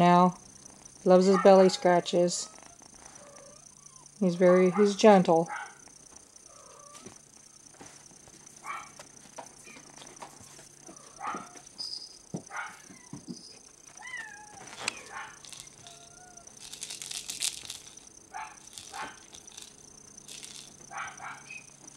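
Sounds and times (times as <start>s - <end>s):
kittens mewing: 13.9s - 19.7s.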